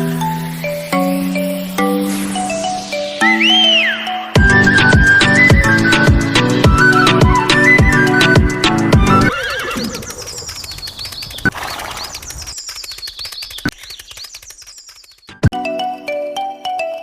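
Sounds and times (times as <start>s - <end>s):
horse whinnying: 9.0s - 10.5s
sharp clicks: 9.6s - 15.6s.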